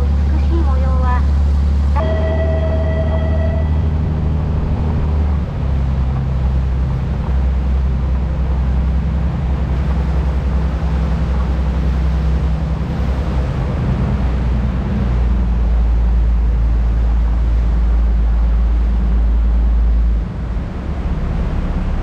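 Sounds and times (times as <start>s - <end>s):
boat engine drone: 0.0s - 22.0s.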